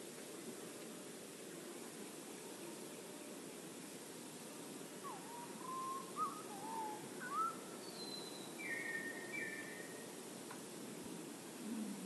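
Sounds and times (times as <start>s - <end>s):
low background noise: 0.0s - 12.0s
bird singing fluty whistles: 5.1s - 10.0s.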